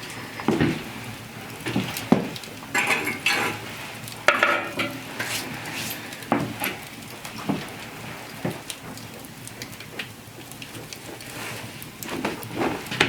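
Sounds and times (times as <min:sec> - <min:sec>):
sizzling hiss: 0:00.0 - 0:10.0
utensil scraping in a pot: 0:02.7 - 0:06.9.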